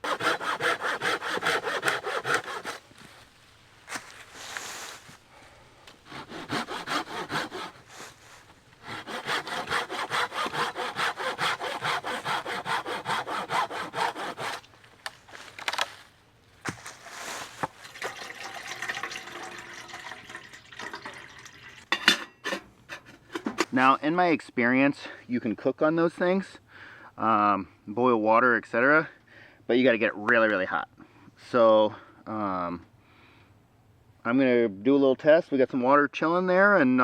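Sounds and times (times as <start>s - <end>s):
hand saw cutting wood: 0.0s - 2.8s, 6.0s - 14.7s.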